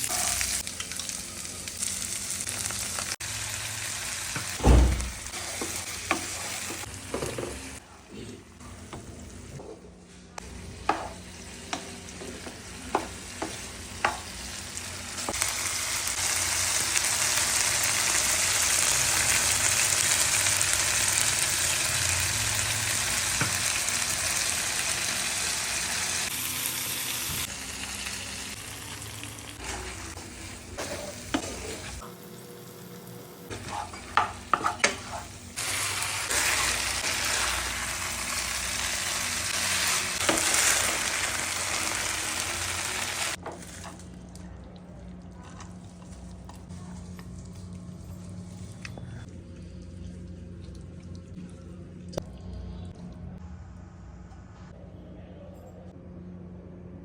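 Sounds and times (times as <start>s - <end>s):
chicken sizzling in a pan: 0.0s - 4.6s, 10.6s - 43.8s
utensil tapping and scraping pan: 33.6s - 35.3s.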